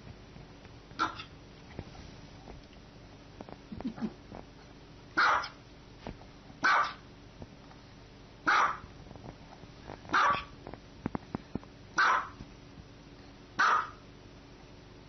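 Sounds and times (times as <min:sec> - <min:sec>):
small dog barking: 0:01.0 - 0:01.3, 0:05.2 - 0:05.6, 0:06.6 - 0:07.0, 0:08.4 - 0:08.9, 0:10.1 - 0:10.6, 0:12.0 - 0:12.4, 0:13.6 - 0:14.0.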